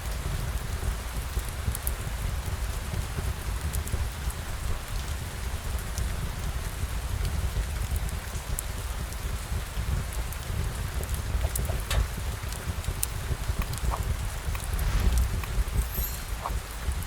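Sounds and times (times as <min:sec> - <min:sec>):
steady rain falling: 0:00.0 - 0:17.0
deep low rumble: 0:14.5 - 0:17.0.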